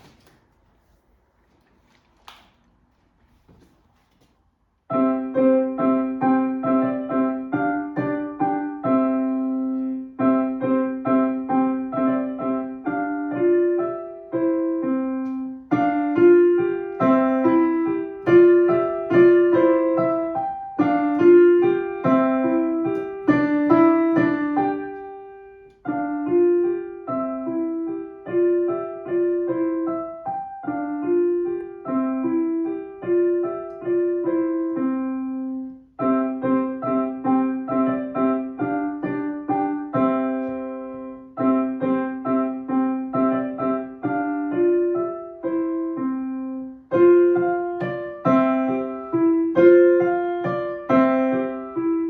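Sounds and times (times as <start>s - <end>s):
solo piano: 4.9s - 52.0s.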